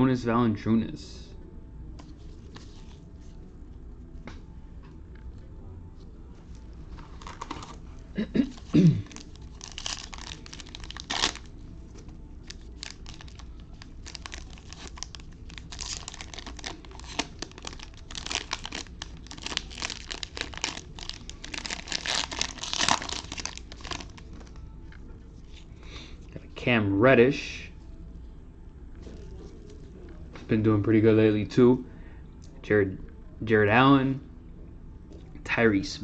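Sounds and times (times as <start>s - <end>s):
foil wrapper tearing and crinkling: 8.5s - 11.5s, 12.4s - 24.2s.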